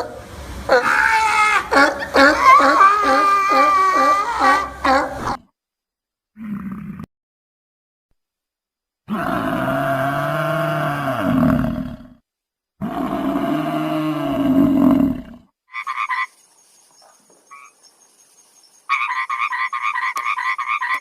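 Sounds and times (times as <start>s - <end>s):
low animal calls: 0.0s - 5.4s
frog croaking: 15.7s - 16.4s, 17.5s - 17.8s, 18.9s - 21.0s.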